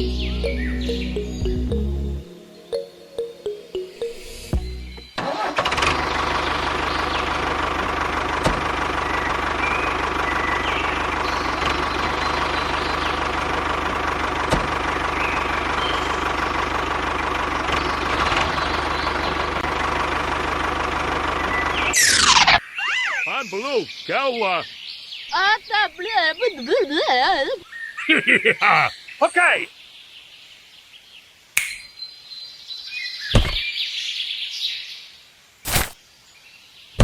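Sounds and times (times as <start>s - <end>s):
engine running steadily: 4.1s - 22.4s
sharp clicks: 31.6s - 31.9s.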